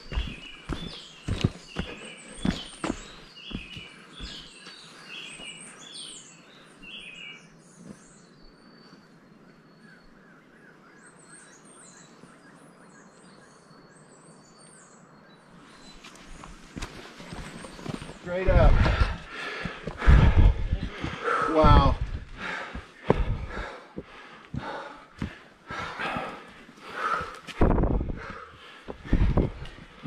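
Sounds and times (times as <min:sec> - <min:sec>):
footsteps on trail: 0:00.0 - 0:05.8, 0:15.9 - 0:30.0
small birds chirping: 0:00.0 - 0:30.0.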